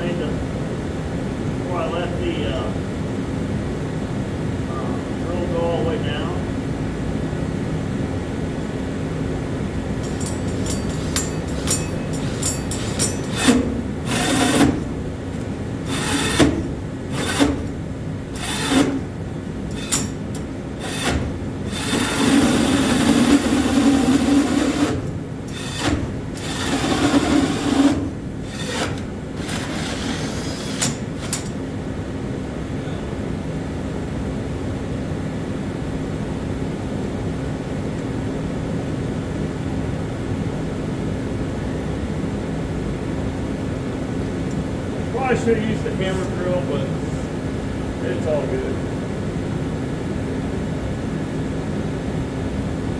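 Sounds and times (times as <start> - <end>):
steady background hum: 0.0 - 52.9
power drill boring: 10.0 - 14.8, 15.8 - 17.7, 18.4 - 19.1, 19.7 - 31.5
drill bit scraping and knocking: 10.0 - 17.8, 18.4 - 31.6.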